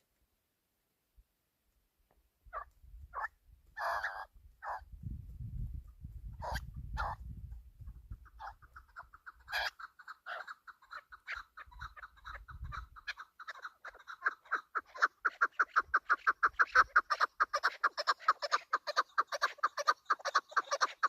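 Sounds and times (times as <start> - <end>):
partridge clucking calls: 2.5 - 4.8, 6.3 - 7.2, 7.8 - 21.0.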